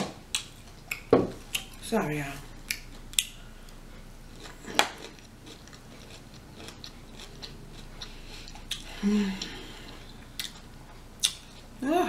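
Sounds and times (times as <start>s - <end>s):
crunchy chewing: 2.7s - 11.8s
person humming: 8.9s - 9.9s.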